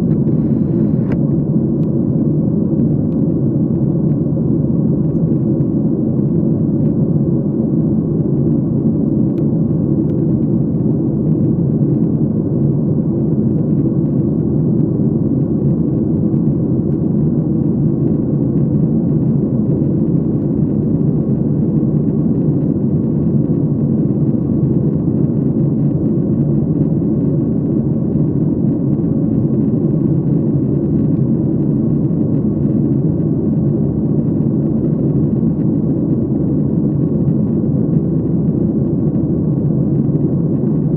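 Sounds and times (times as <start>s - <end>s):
airliner cabin engine rumble: 0.0s - 40.9s.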